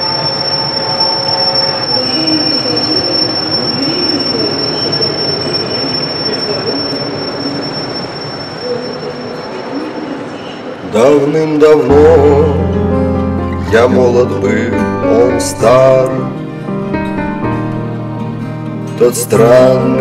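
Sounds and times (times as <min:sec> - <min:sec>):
high wheel squeal: 0:00.0 - 0:10.8
lower wavering squeals: 0:00.0 - 0:10.8
train rumbling on rails: 0:00.0 - 0:20.0.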